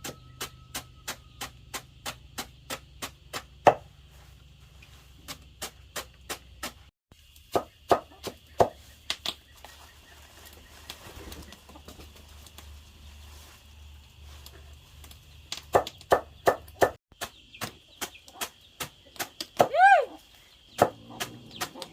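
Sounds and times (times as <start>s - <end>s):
rapid chopping strikes: 0.0s - 3.9s, 5.2s - 6.9s, 15.7s - 19.7s.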